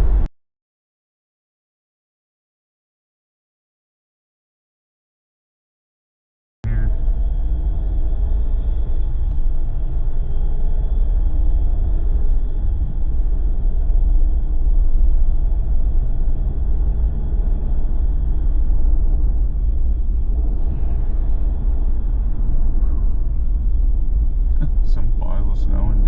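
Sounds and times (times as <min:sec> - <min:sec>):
faint engine drone: 0:00.0 - 0:00.3, 0:06.6 - 0:26.0
car driving on road: 0:06.7 - 0:26.0.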